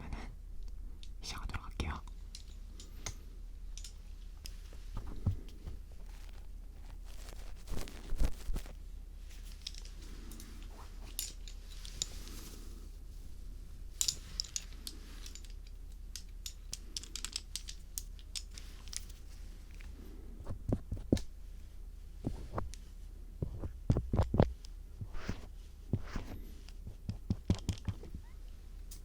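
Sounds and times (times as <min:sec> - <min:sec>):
scraping and tapping at microphone: 0:04.7 - 0:08.8, 0:20.4 - 0:21.3, 0:22.2 - 0:28.4.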